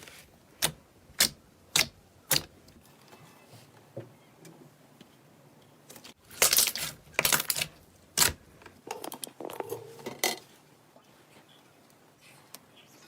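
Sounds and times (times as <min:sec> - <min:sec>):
slime crackling and popping: 0:06.2 - 0:08.4.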